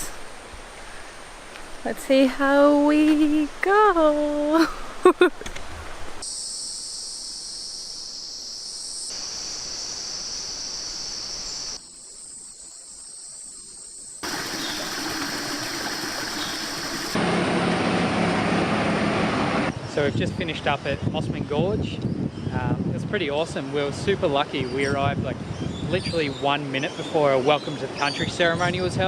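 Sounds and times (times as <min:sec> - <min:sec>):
stream water rushing: 0:03.3 - 0:06.2, 0:14.2 - 0:19.7.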